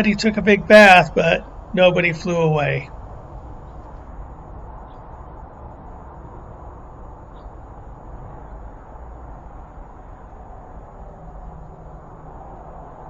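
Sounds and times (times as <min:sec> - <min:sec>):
faint high whine: 0:00.0 - 0:12.1
low outdoor background noise: 0:00.0 - 0:13.0.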